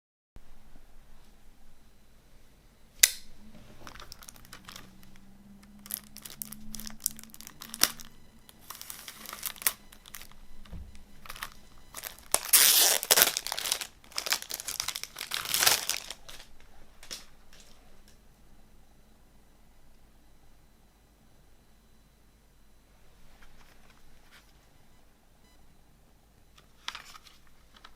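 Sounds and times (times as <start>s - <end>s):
packaging crinkling and tearing: 3.8s - 10.4s, 11.2s - 17.8s.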